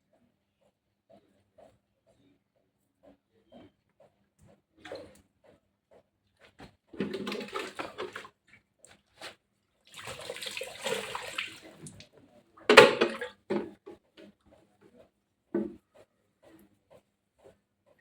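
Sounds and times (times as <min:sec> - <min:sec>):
water splashing: 0:09.9 - 0:12.0.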